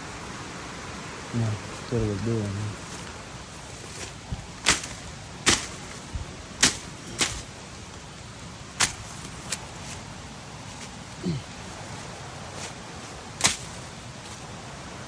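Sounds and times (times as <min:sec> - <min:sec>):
steady hiss: 0:00.0 - 0:15.0
swishing strikes through brush: 0:02.8 - 0:08.0, 0:08.8 - 0:10.0, 0:12.4 - 0:14.5.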